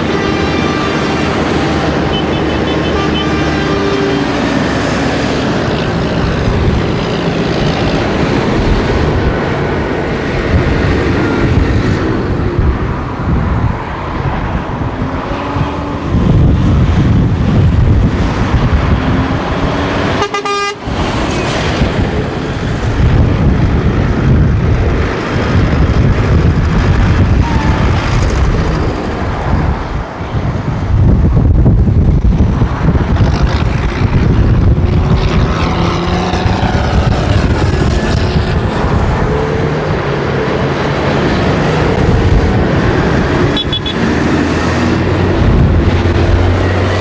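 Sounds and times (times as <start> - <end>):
horns tooting: 0.0 - 4.8, 20.1 - 21.4, 43.4 - 44.2
tractor diesel engines: 0.0 - 47.0.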